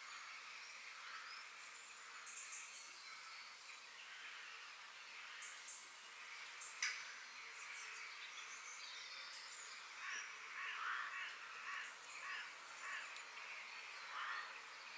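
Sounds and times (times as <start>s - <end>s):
small birds chirping: 0.0s - 14.9s
steady background hiss: 0.0s - 14.9s
harsh bird calls: 9.8s - 14.9s.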